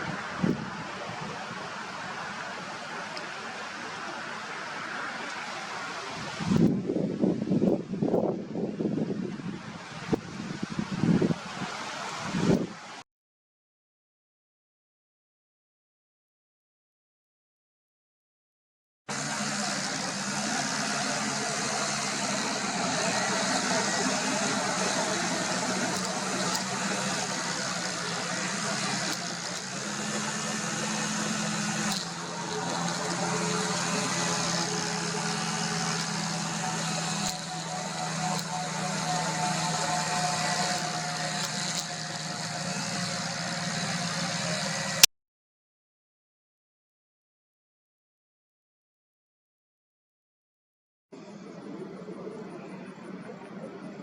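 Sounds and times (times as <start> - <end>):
low mechanical hum: 19.1 - 45.1, 51.2 - 54.0.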